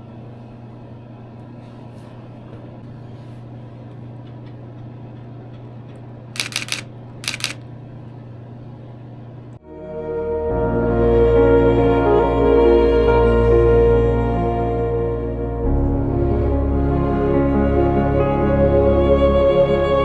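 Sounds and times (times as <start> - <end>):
camera shutter rapid clicks: 6.4 - 7.6.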